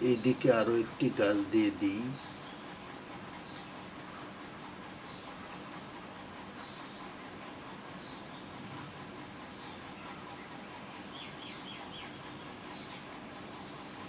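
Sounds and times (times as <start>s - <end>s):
faint steady hiss: 0.0s - 2.5s.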